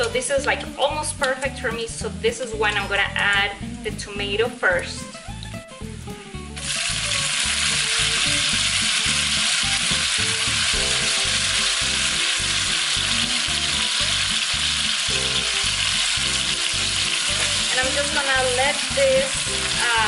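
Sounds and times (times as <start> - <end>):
tomatoes sizzling in hot fat: 0.0 - 20.0.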